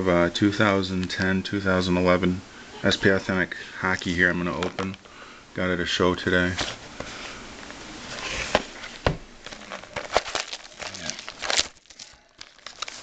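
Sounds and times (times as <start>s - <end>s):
cardboard packaging crinkling: 7.6s - 13.0s.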